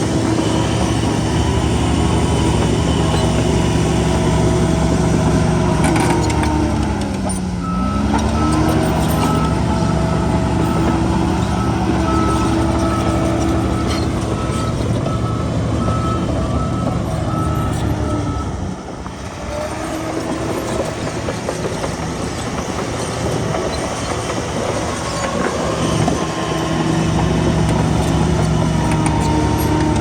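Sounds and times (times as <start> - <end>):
diesel earthmoving machinery running: 0.0 - 30.0
reversing alarm beeping: 7.6 - 18.8.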